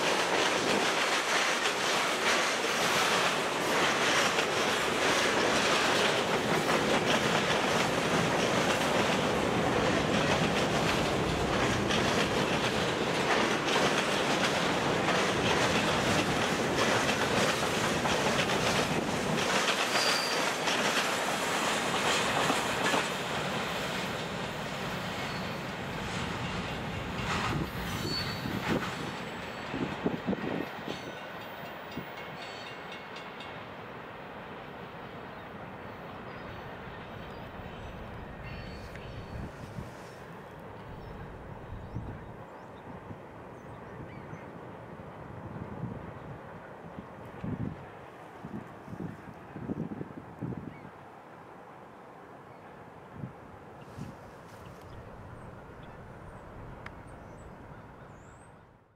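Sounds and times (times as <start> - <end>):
wheels clacking over rail joints: 0.0 - 33.7
train clanks: 0.0 - 50.0, 53.7 - 58.5
freight train rumbling past: 0.0 - 58.9
short high squeaks: 19.9 - 20.5, 27.9 - 28.6.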